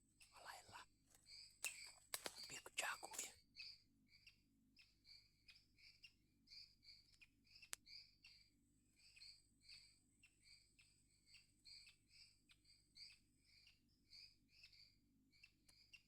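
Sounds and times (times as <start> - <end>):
faint insect whine: 0.3 - 3.7
sharp click: 1.6 - 2.5.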